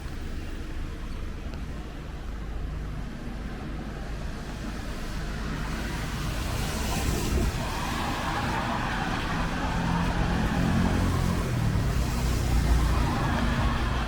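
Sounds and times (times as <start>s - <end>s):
vehicle engine rumbling: 0.0s - 14.0s
tyre hiss on wet road: 4.4s - 14.0s.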